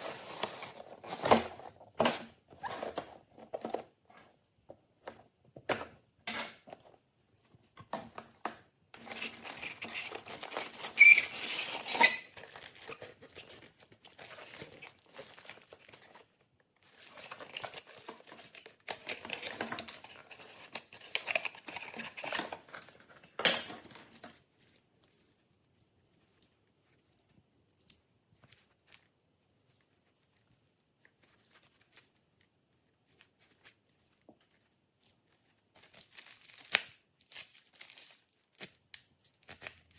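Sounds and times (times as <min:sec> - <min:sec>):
packaging crinkling and tearing: 0:09.0 - 0:25.4, 0:29.8 - 0:39.9.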